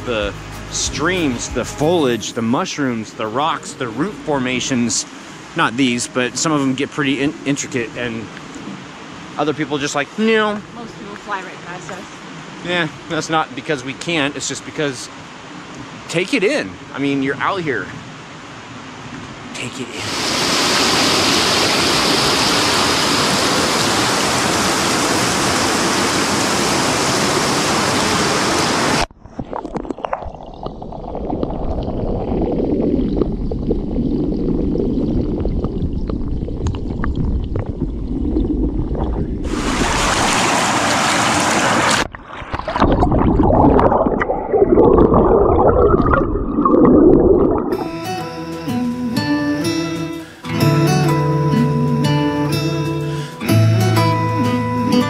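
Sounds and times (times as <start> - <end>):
guitar music: 0.0 - 5.0, 47.7 - 55.0
rushing water: 0.0 - 48.2
low rumble: 30.8 - 40.1.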